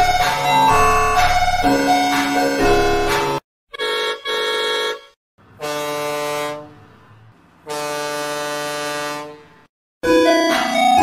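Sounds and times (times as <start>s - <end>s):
long deep horn blasts: 7.7s - 9.4s.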